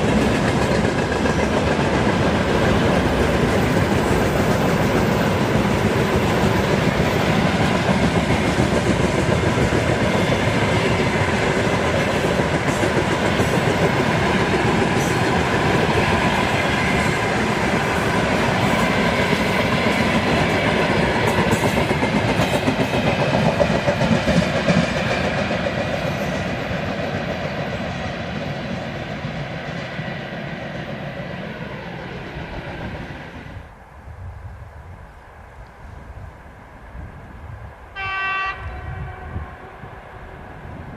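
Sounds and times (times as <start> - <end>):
wheels clacking over rail joints: 0.0 - 28.0
freight train wagons rumbling: 0.0 - 33.0.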